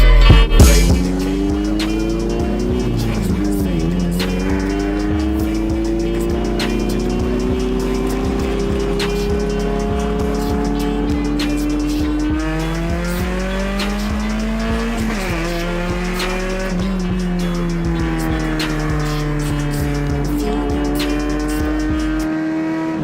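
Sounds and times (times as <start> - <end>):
car engine revving high: 0.0 - 23.0
music with steady beat: 0.0 - 23.0.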